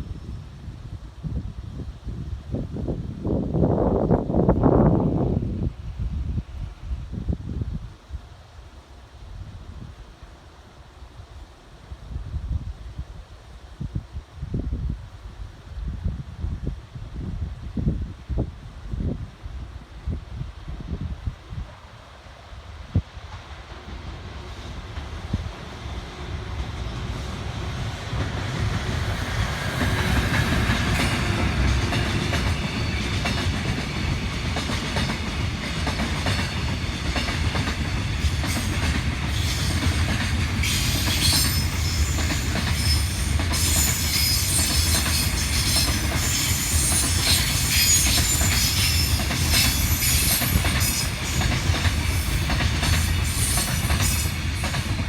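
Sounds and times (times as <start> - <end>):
freight train rumble: 14.3 - 55.0
wheel and rail squeal: 40.6 - 52.4, 53.0 - 55.0.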